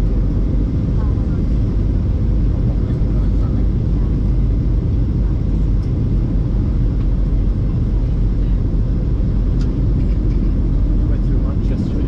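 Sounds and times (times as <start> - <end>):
jet engines rumbling: 0.0 - 12.0
rushing air in cabin: 0.0 - 12.0.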